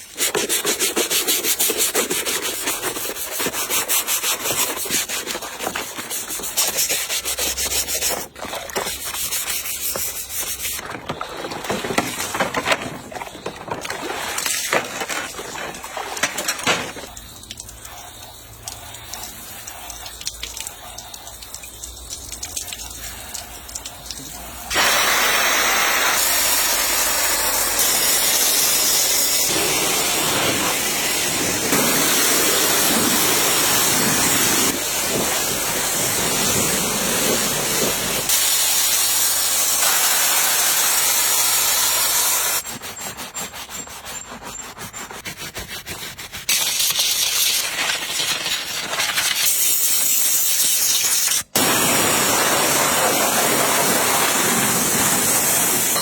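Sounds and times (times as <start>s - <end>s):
high-pressure water spraying car: 17.0s - 42.6s, 46.5s - 56.0s.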